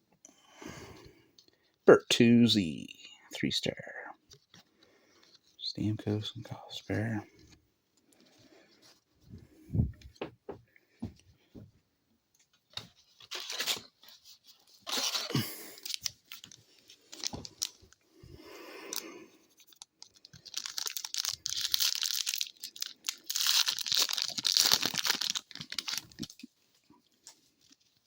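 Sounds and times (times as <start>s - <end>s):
loud wrapper rustling: 12.9s - 18.0s, 18.9s - 26.5s
wrapper tearing and crinkling: 13.2s - 17.8s, 19.6s - 26.5s.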